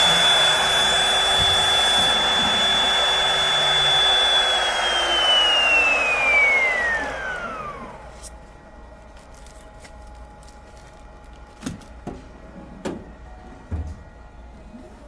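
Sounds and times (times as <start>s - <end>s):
motor whine spinning down: 0.0s - 8.3s.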